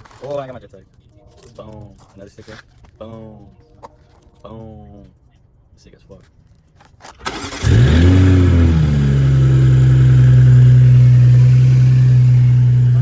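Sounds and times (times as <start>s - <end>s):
car engine starting and idling: 7.2s - 13.0s.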